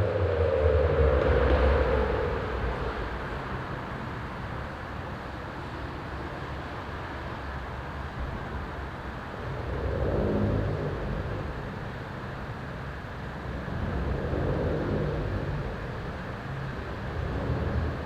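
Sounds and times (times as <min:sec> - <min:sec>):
car engine passing by: 0:00.0 - 0:04.7
car engine with performance exhaust: 0:00.0 - 0:18.0
steady traffic rumble: 0:00.0 - 0:18.0.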